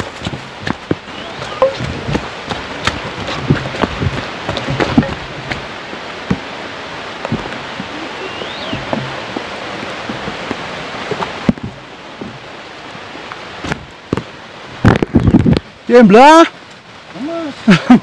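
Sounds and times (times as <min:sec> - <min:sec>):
steady rain hiss: 0:00.0 - 0:18.0
small knocks and taps: 0:08.8 - 0:10.5.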